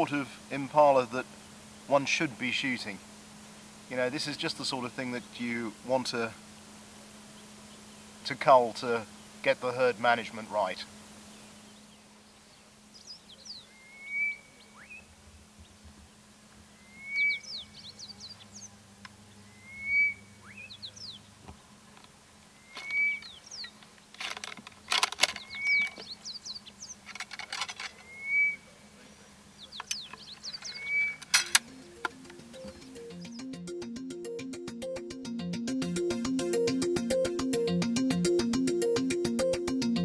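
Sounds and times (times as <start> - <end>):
bird chirps: 11.2 - 15.8, 16.7 - 18.8, 19.4 - 21.4, 22.5 - 23.8, 24.8 - 27.1, 27.9 - 28.8, 29.5 - 33.7
bird whistled call: 12.9 - 15.1, 16.8 - 18.7, 19.4 - 21.2, 22.6 - 23.8, 25.4 - 27.0, 28.0 - 28.7, 29.6 - 31.3
ramrod rattling clicks: 22.8 - 26.1, 27.0 - 28.1, 29.8 - 32.8.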